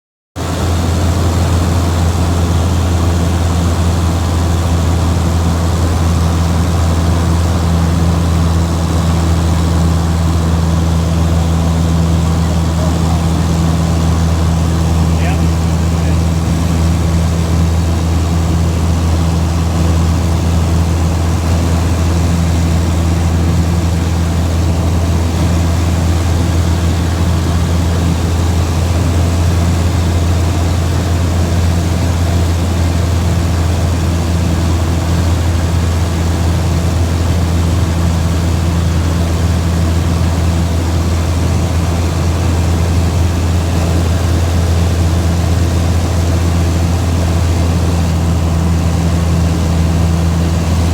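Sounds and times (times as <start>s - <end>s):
vehicle engine drone: 0.4s - 50.9s
background rush: 8.7s - 29.8s.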